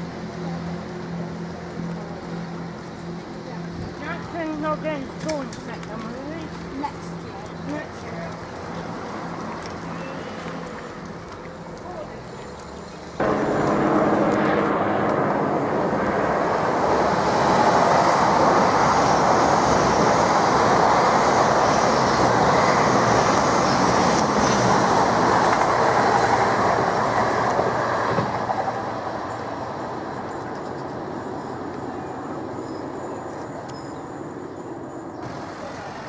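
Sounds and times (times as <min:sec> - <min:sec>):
train engines and wheels rumbling: 0:00.0 - 0:36.0
rail clatter: 0:12.4 - 0:31.0.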